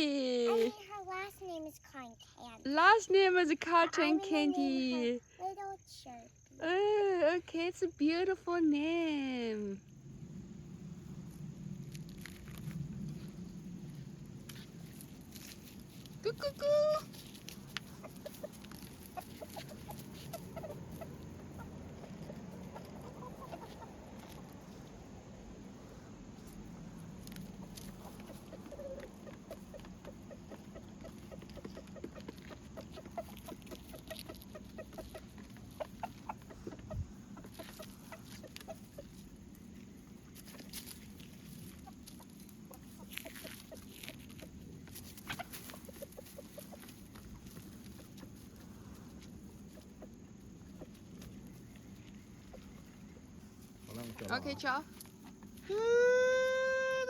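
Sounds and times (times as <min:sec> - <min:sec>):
chickens clucking: 0:16.2 - 0:55.7.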